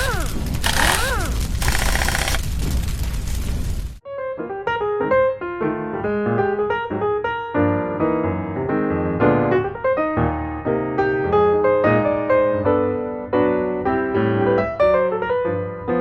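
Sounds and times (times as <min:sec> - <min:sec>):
piano tune: 0:04.1 - 0:16.0.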